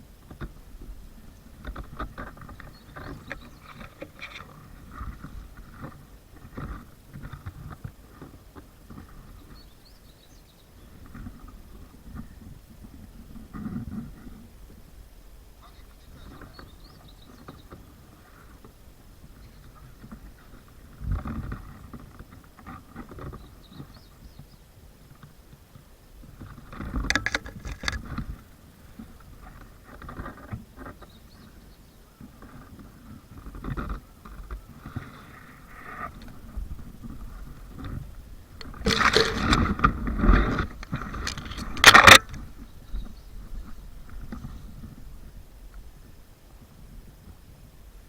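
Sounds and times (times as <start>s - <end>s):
scraping and clatter: 26.4s - 28.4s, 32.4s - 42.5s.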